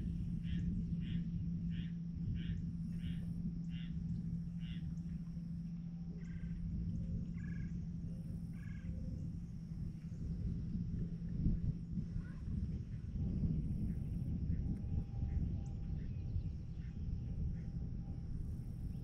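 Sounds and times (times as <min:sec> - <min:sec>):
bird calling: 0:00.0 - 0:05.6, 0:07.4 - 0:07.8, 0:08.5 - 0:09.3
low rumble and hum: 0:00.0 - 0:19.0.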